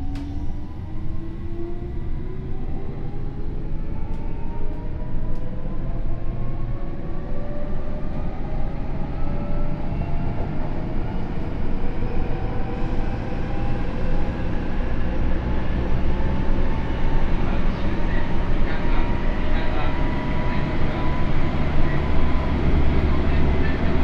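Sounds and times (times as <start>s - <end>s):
wheels rumbling on rails: 7.6s - 24.0s.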